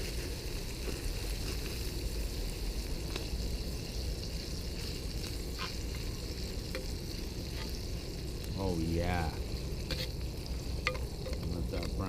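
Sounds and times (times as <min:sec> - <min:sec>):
ham sizzling in butter: 0:00.0 - 0:12.0.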